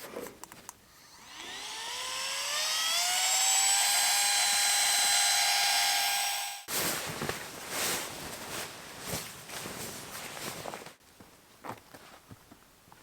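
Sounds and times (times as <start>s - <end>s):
electric pump motor whine: 1.0s - 6.7s.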